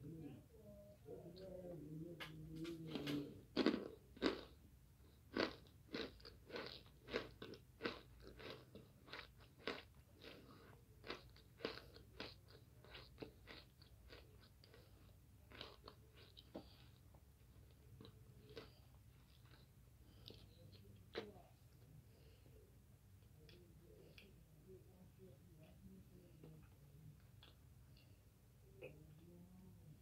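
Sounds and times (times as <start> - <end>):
person chewing crunchy food: 2.7 - 21.4.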